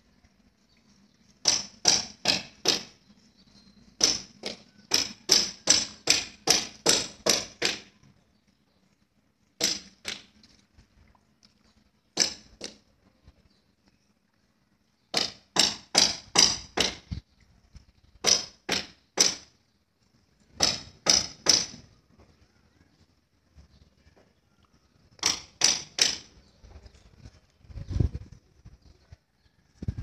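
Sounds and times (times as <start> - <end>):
sharp knocks: 1.4 - 3.0, 9.6 - 10.3, 25.2 - 26.3.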